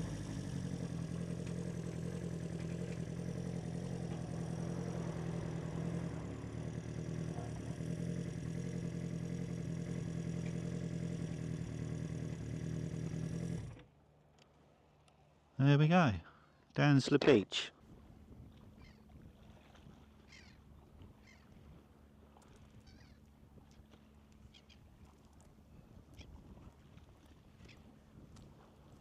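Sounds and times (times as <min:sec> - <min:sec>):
motorcycle engine idling: 0:00.0 - 0:13.8.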